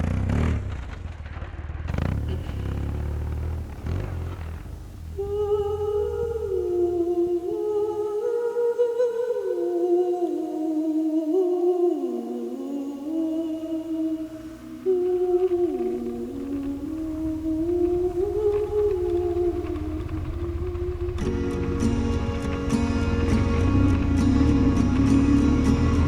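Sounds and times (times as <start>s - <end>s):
motorcycle rumble: 0.0s - 7.8s, 13.8s - 26.0s
person humming a melody: 5.2s - 21.4s.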